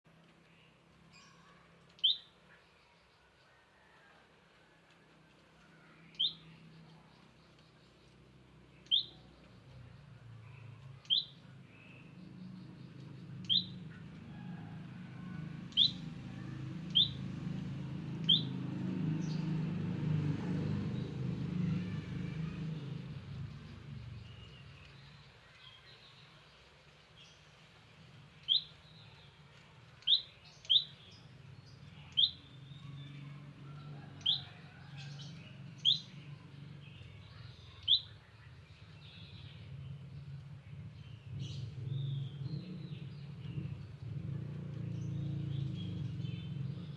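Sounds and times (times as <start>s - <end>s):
bird sharp high calls: 1.2s - 3.0s, 8.8s - 9.3s, 10.5s - 14.0s, 15.7s - 16.1s, 16.9s - 17.2s, 18.2s - 18.5s, 28.4s - 29.2s, 30.0s - 31.3s, 37.1s - 38.6s
low rumble: 38.4s - 46.9s.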